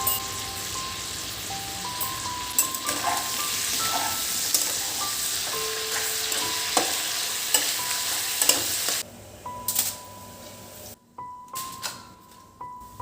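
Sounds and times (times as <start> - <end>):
soft background music: 0.0 - 8.8, 9.4 - 13.0
food sizzling in a pan: 0.0 - 9.0.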